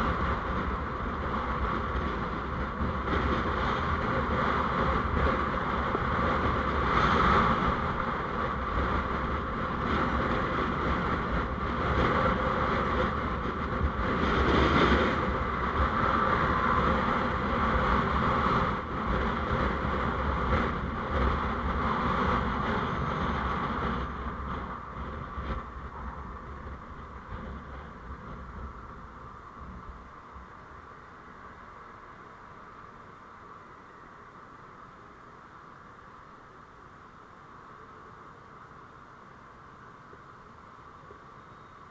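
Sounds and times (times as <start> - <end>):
wind noise on microphone: 0.0 - 31.8
vehicle road rumble: 0.0 - 41.9.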